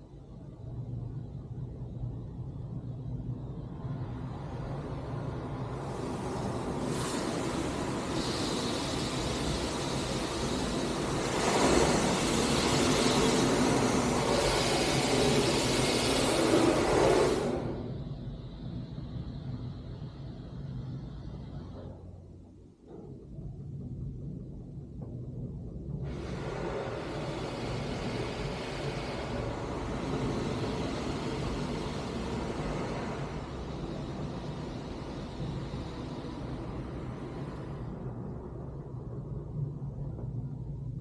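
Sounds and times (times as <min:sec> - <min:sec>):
low rumble: 0:00.0 - 0:41.0
car wash machinery noise: 0:04.0 - 0:21.8, 0:25.9 - 0:40.8
spraying water rush: 0:05.8 - 0:17.8.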